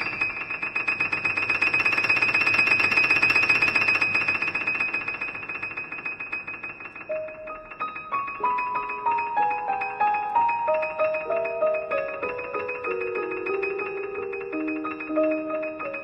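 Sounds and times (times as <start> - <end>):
piano tremolo high notes: 0.0 - 16.0
single piano notes: 7.0 - 16.0.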